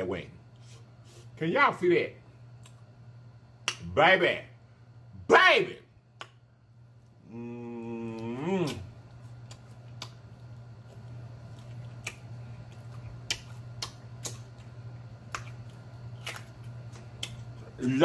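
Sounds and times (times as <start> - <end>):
steady low hum: 0.0 - 18.0
lip-smacks and chewing: 2.5 - 2.9, 8.1 - 18.0
person humming: 7.2 - 8.9.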